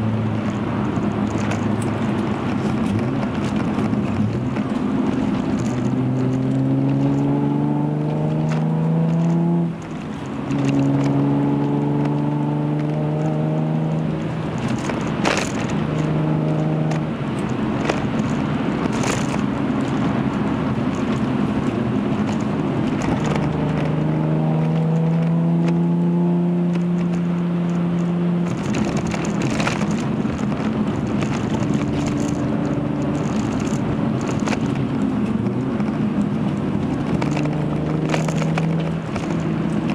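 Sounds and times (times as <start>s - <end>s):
road noise: 0.0s - 39.9s
car exhaust note accelerating: 5.7s - 14.6s.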